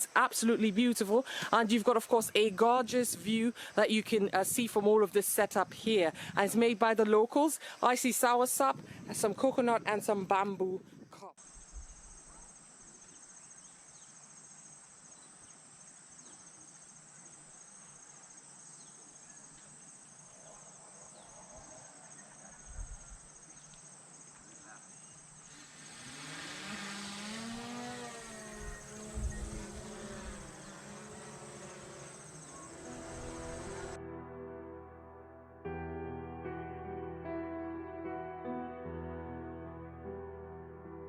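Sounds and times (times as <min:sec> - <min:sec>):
forest insects trilling: 0:11.4 - 0:34.0
loud hiss: 0:25.3 - 0:34.0.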